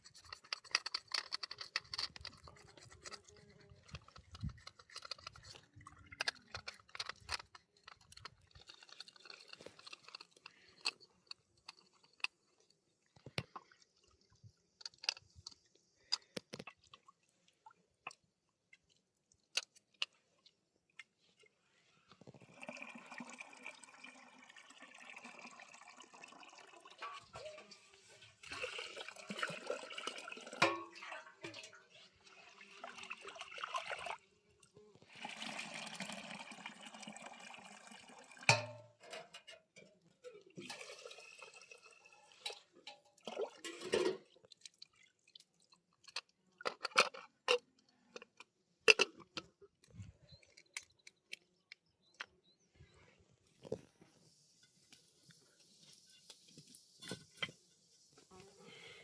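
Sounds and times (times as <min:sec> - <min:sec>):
water pouring and splashing: 0:00.0 - 0:11.0, 0:22.2 - 0:34.2, 0:35.0 - 0:39.2, 0:40.2 - 0:46.2.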